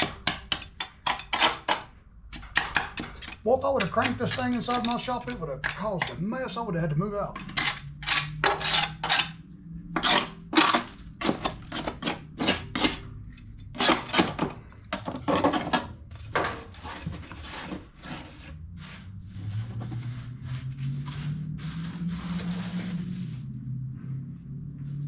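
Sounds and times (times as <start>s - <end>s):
rasping scrapes on mower deck: 0.0s - 6.3s, 7.4s - 9.4s, 10.0s - 20.5s.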